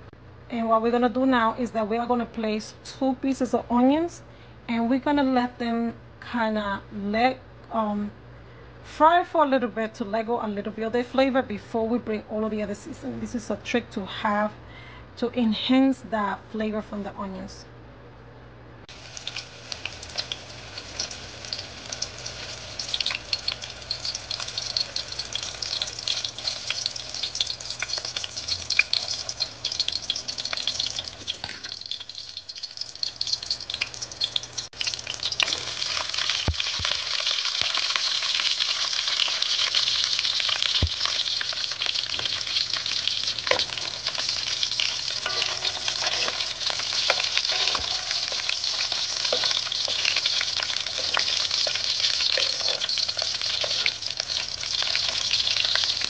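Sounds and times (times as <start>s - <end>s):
onions frying in oil: 18.9s - 56.0s
peppers frying: 18.9s - 56.0s.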